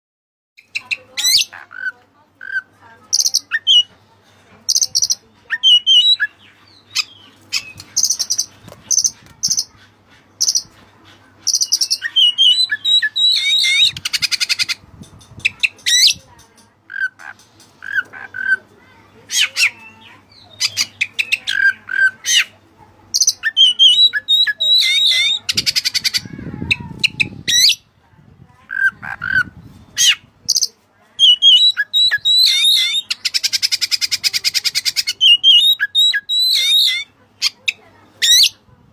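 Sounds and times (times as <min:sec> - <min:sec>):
bird singing whistled song: 0:11.5 - 0:14.4, 0:23.2 - 0:25.4, 0:31.2 - 0:33.1, 0:35.0 - 0:37.1.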